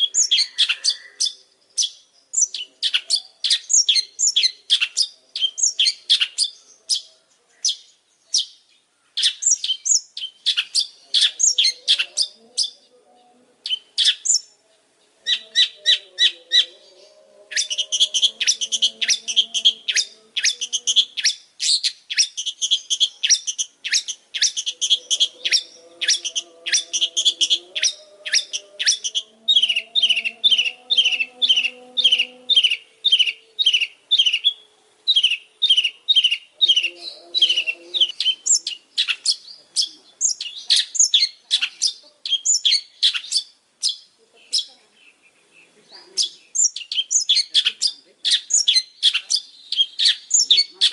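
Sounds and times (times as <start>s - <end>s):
bird singing sharp chirps: 9.2s - 12.8s, 15.3s - 50.9s.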